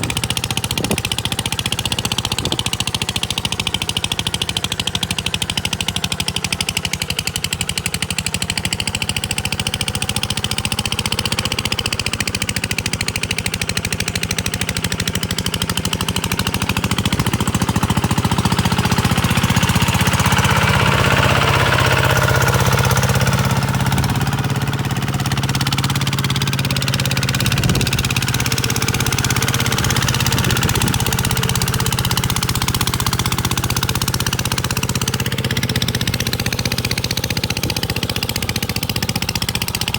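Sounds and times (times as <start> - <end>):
diesel engine knocking chug: 0.0 - 39.9.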